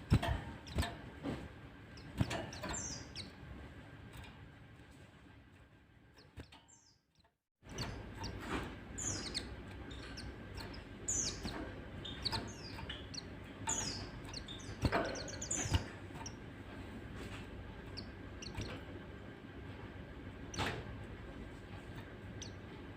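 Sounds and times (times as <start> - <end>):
birds chirping high: 0.0 - 4.4, 6.1 - 22.9
low steady hum: 7.6 - 22.9.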